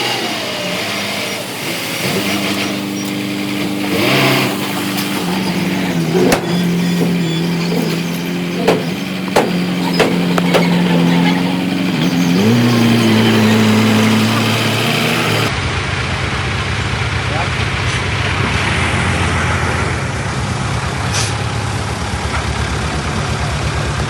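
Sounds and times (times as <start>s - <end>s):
heavy machinery diesel engine: 0.0s - 24.0s
metallic clanks: 3.0s - 14.2s.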